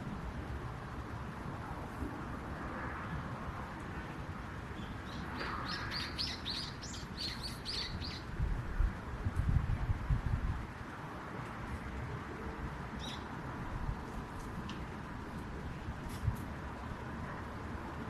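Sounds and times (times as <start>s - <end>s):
small bird chirping: 4.8s - 8.2s, 13.0s - 13.2s
wind buffets on microphone: 5.4s - 12.0s, 13.6s - 16.9s.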